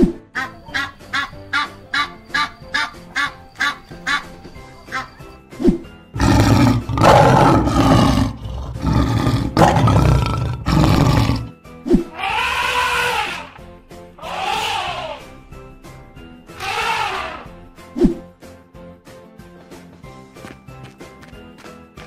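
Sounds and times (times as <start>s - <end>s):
background music: 0.0s - 22.0s
lion roaring: 6.2s - 11.5s.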